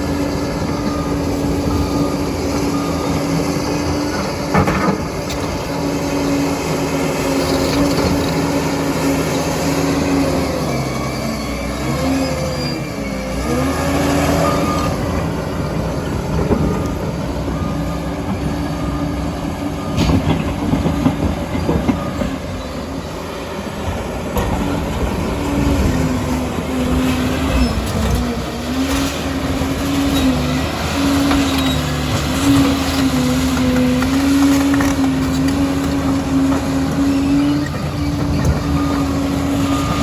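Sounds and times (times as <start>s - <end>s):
diesel engine running hard: 0.0s - 40.0s
steel tracks clattering and squealing: 7.2s - 8.7s, 10.4s - 15.2s, 16.2s - 40.0s.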